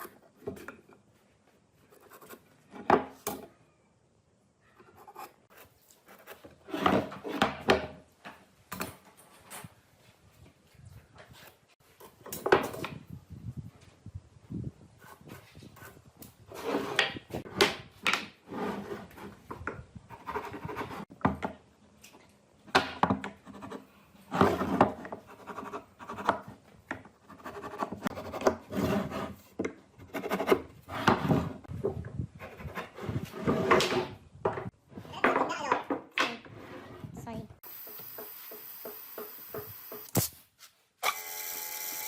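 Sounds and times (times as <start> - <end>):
rubbing and scraping on wood: 14.9 - 17.6, 18.2 - 21.1, 23.3 - 35.7.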